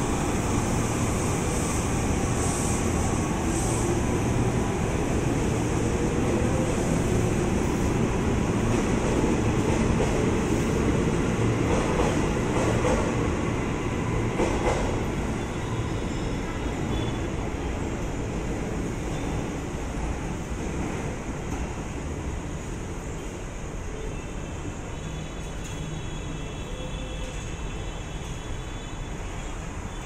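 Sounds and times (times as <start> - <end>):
train wheels rumbling on rail: 0.0 - 30.0
train clatter: 11.6 - 13.2.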